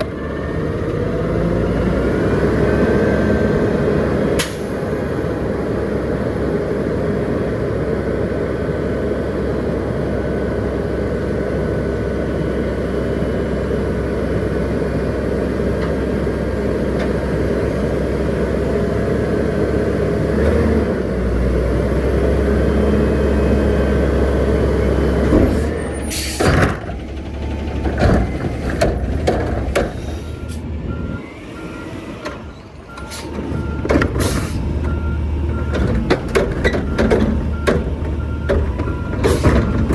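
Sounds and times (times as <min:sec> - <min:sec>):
garbage truck engine rumbling: 0:00.0 - 0:39.9
air brakes hissing: 0:25.5 - 0:26.6, 0:29.9 - 0:30.7, 0:33.0 - 0:33.4, 0:34.2 - 0:34.8.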